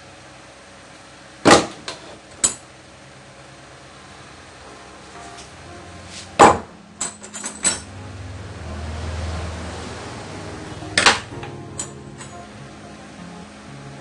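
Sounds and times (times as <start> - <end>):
low hum: 3.3 - 14.0
sharp metallic knocks and clanks: 6.4 - 7.9.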